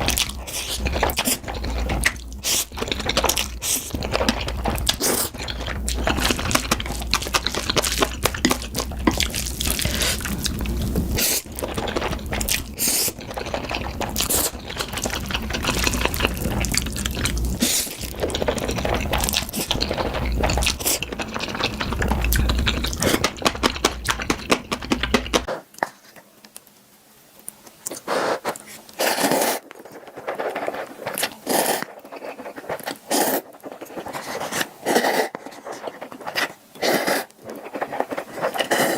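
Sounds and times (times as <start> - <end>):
chewing and smacking: 0.0 - 26.0, 27.4 - 38.9
food handling noises: 0.0 - 26.6.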